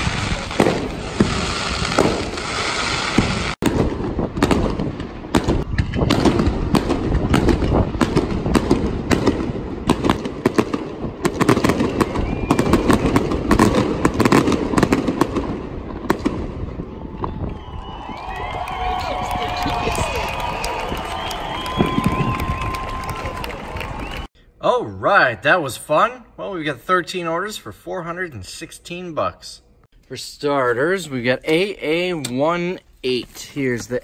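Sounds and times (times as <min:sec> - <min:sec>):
fireworks bangs and crackles: 0:00.0 - 0:24.3.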